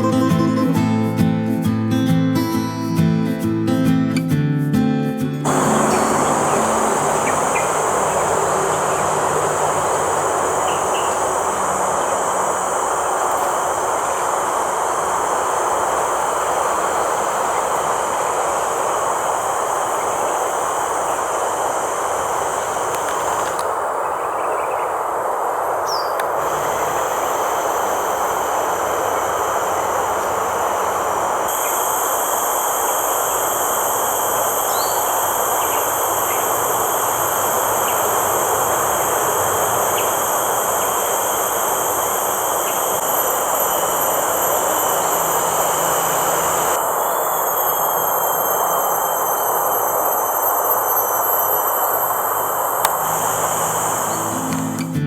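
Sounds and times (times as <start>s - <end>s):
shrill insect buzzing: 5.4s - 55.0s
loud rushing noise: 5.5s - 12.5s
faint bird chirps: 5.5s - 13.1s, 23.9s - 25.2s, 25.8s - 26.2s, 34.2s - 41.4s.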